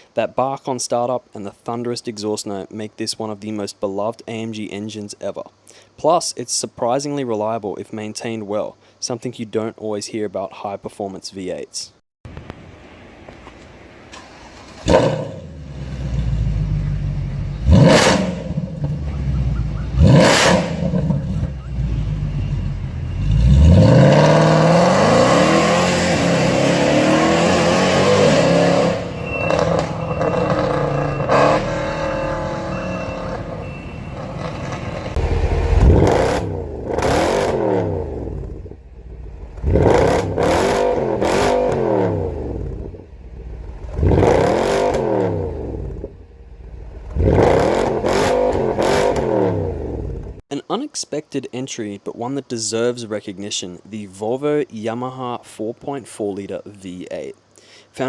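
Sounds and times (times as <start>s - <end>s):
car engine revving and accelerating: 14.3s - 38.7s, 39.4s - 50.4s.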